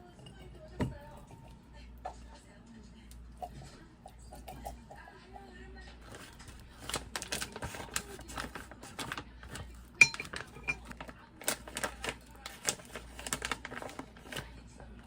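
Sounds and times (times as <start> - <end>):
cutlery and dishes clinking: 9.0 - 11.1.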